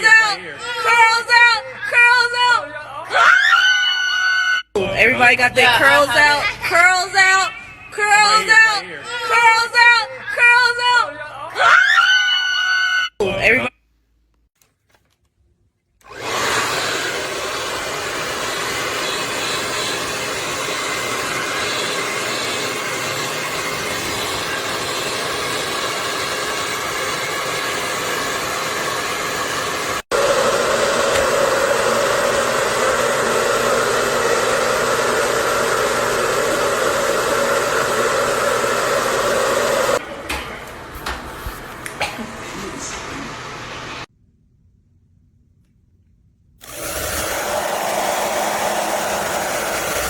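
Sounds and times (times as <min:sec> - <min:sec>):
hair dryer blowing: 0:16.0 - 0:44.1, 0:46.6 - 0:50.0.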